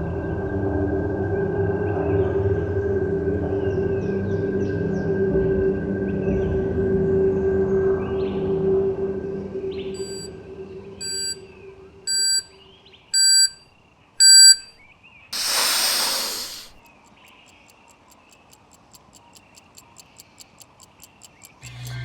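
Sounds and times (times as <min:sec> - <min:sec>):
faint ambient music: 0:00.0 - 0:12.7
short electronic beeps: 0:10.0 - 0:10.3, 0:11.0 - 0:11.4, 0:12.1 - 0:12.5, 0:13.2 - 0:13.6, 0:14.2 - 0:14.7
rapid clock-like ticking: 0:16.4 - 0:22.0.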